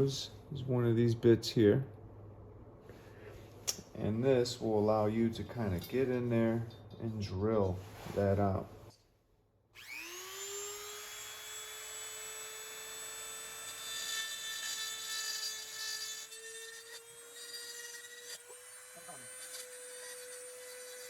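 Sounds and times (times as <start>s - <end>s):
rotary tool grinding metal: 9.8s - 21.0s
rotary tool whining: 9.8s - 21.0s.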